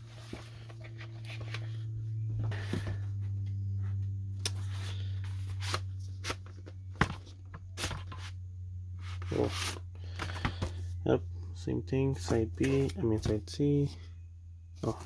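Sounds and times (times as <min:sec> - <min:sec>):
paper sleeves rustling: 0:00.0 - 0:06.9, 0:09.0 - 0:10.9, 0:12.1 - 0:14.0
steady low hum: 0:00.0 - 0:15.0.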